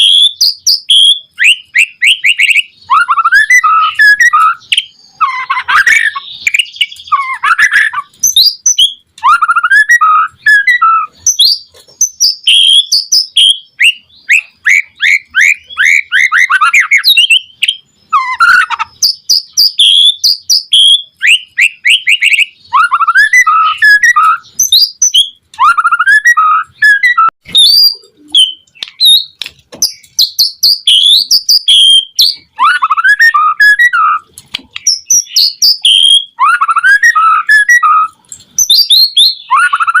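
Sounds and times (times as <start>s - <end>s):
songbird whistles and trills: 0.0s - 40.0s.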